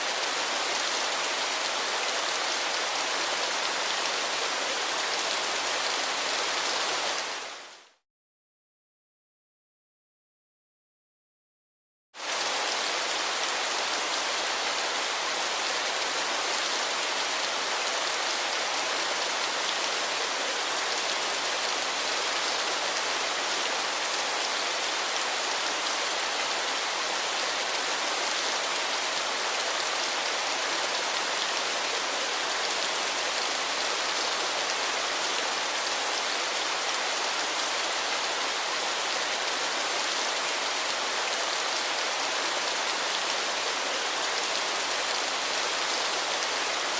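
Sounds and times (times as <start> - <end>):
waterfall hiss: 0.0 - 7.7.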